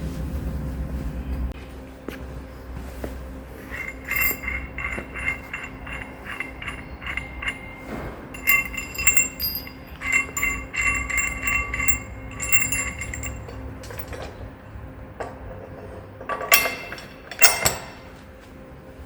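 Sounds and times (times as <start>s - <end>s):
metal clinking and ringing: 3.6s - 18.2s.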